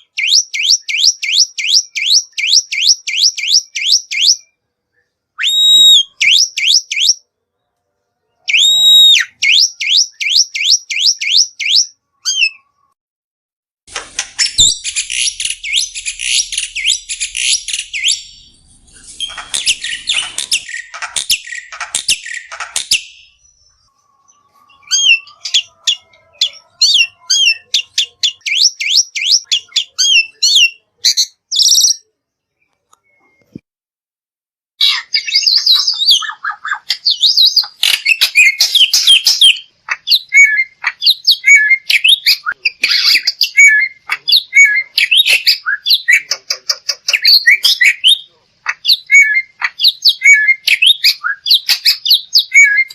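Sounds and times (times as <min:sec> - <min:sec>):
starling singing: 0:00.0 - 0:04.6, 0:05.4 - 0:07.2, 0:08.4 - 0:12.8, 0:14.1 - 0:32.0, 0:34.8 - 0:52.9
bird harsh rasping chatter: 0:14.1 - 0:23.0.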